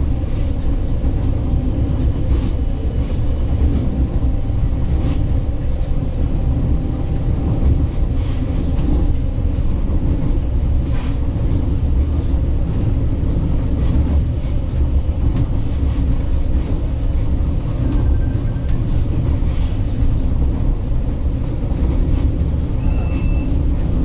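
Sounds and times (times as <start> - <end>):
wheels rumbling on track: 0.0 - 24.0
high squeaks: 22.8 - 23.6.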